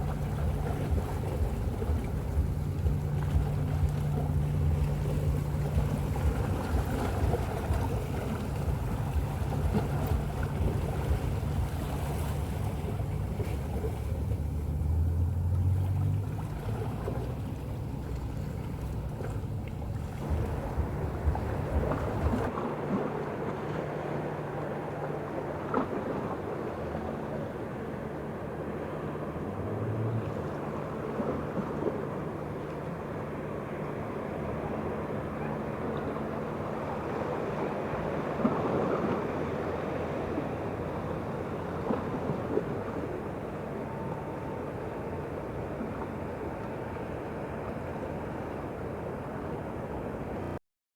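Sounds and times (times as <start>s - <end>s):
deep ship engine rumble: 0.0s - 50.6s
water wash: 0.0s - 50.6s
wind on microphone: 0.0s - 50.6s.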